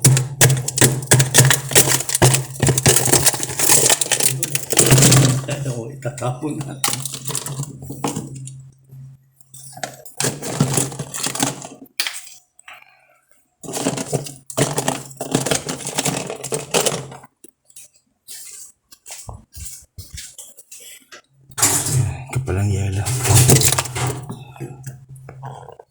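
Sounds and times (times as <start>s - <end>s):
ice chunks clattering and cracking: 0.0s - 5.8s, 6.7s - 8.6s, 9.6s - 12.4s, 13.6s - 19.0s, 23.0s - 25.9s
steady low hum: 21.5s - 25.6s.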